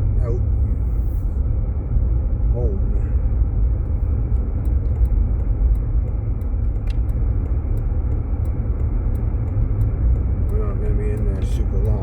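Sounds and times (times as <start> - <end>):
car interior engine rumble: 0.0 - 12.0
faint light ticks: 3.8 - 12.0.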